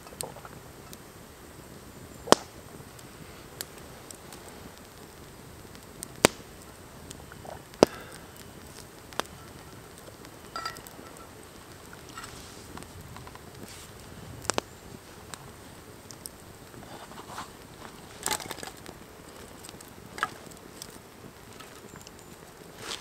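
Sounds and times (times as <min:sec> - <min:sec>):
campfire crackling and popping: 0:00.0 - 0:23.0
steady low fire hiss: 0:00.0 - 0:23.0.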